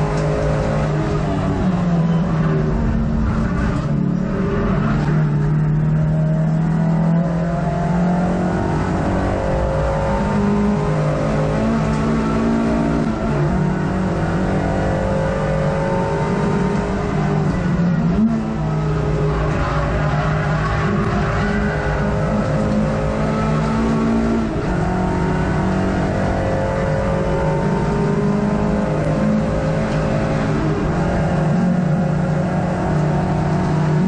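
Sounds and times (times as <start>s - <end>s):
race car engine revving: 0.0s - 34.0s
tyre and road noise: 0.0s - 34.0s.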